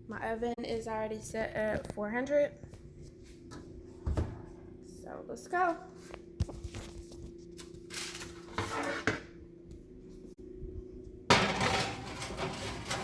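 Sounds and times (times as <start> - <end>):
steady low hum: 0.0 - 13.0
sheet pan scraping and knocking: 11.3 - 13.0.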